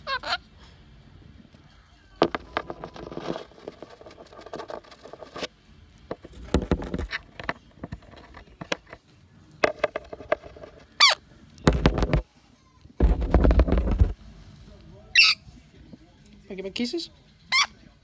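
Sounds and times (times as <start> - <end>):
taps and knocks: 6.1 - 9.0.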